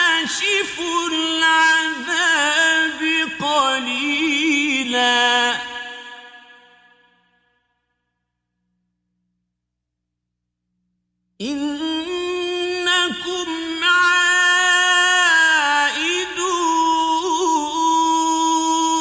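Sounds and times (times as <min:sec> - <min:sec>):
man reciting melodically: 0:00.0 - 0:06.5, 0:11.4 - 0:19.0.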